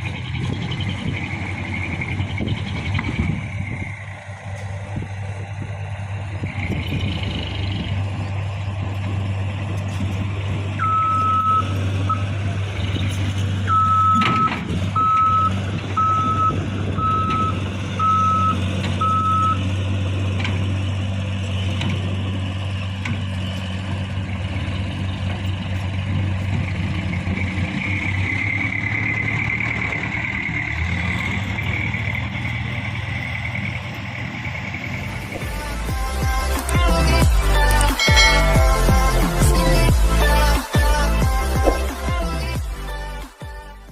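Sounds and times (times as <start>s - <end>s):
truck diesel engine running: 0.0s - 43.9s
reversing beeper: 10.7s - 19.7s, 38.0s - 39.9s.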